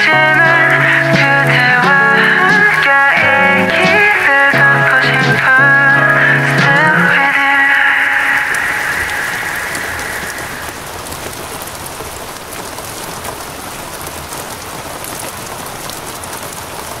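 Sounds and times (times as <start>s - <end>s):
lingering high tone: 0.0s - 11.0s
steady rain falling: 0.0s - 17.0s.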